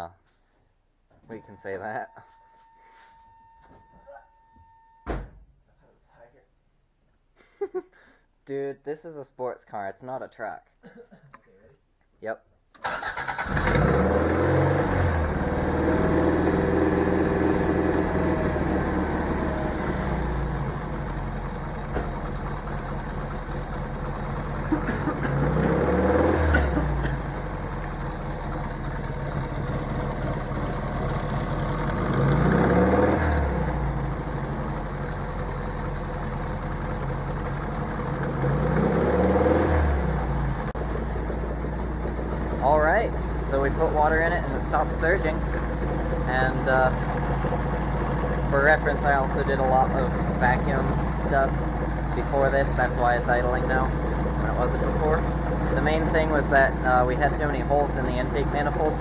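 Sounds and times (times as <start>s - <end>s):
car engine starting: 12.8s - 59.0s
car engine surging idle: 12.8s - 59.0s.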